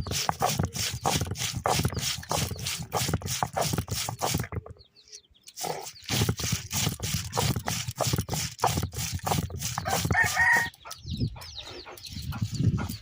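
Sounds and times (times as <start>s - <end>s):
chicken calling: 9.7s - 13.0s.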